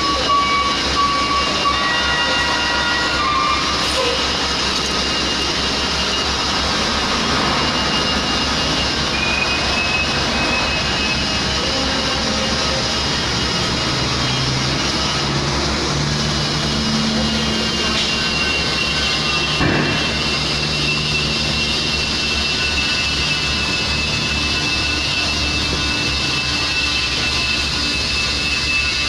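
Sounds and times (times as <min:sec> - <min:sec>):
diesel engine running: 0:00.0 - 0:29.0
high whine: 0:00.0 - 0:29.0.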